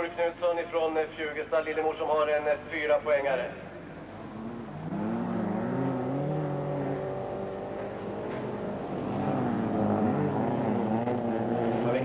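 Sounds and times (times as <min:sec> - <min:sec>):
race car engines revving: 0:04.0 - 0:12.0.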